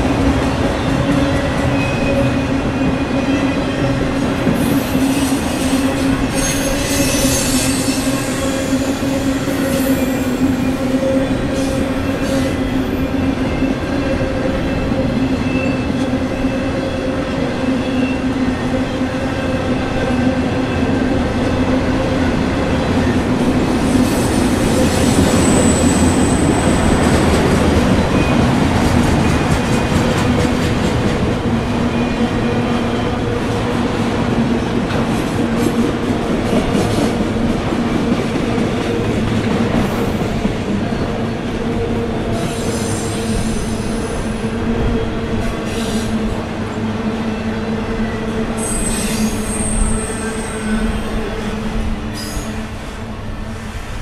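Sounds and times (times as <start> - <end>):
train wheels rumbling on rail: 0.0 - 54.0
high wheel squeals: 4.6 - 12.6, 24.2 - 26.8.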